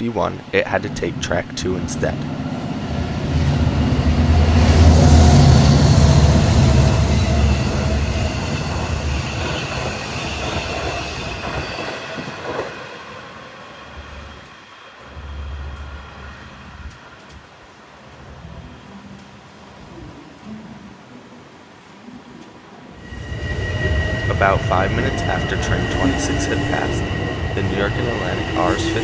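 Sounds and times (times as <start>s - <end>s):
wheels squealing: 0.0s - 16.4s, 23.0s - 29.0s
train rumbling on rails: 0.0s - 18.9s, 23.0s - 29.0s.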